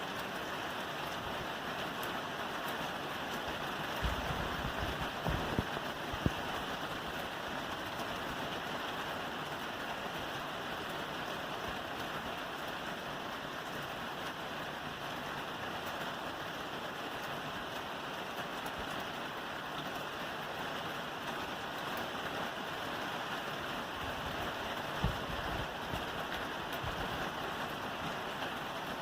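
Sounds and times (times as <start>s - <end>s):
rain falling on a roof: 0.0s - 29.0s.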